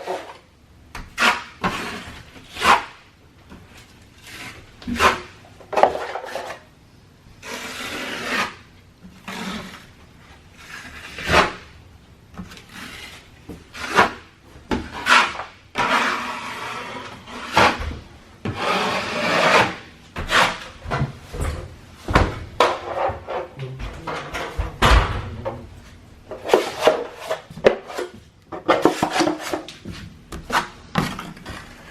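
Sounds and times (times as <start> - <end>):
tools scraping drywall: 0.0 - 0.4, 1.0 - 3.0, 3.6 - 6.7, 7.4 - 11.7, 12.4 - 23.6, 26.3 - 31.9.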